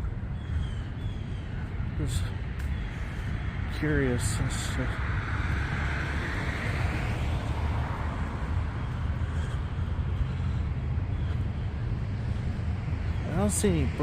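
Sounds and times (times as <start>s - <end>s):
traffic rumble: 0.0s - 14.0s
vehicle passing by: 2.9s - 14.0s.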